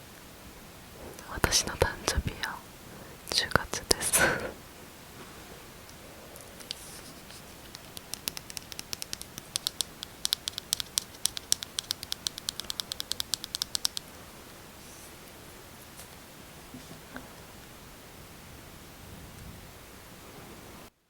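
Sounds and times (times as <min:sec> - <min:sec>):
fingernails tapping on lipstick tube: 0:07.7 - 0:14.1.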